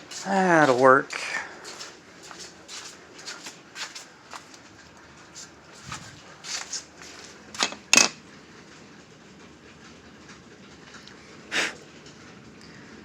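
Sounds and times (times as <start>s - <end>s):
objects clacking on a table: 7.6s - 8.2s.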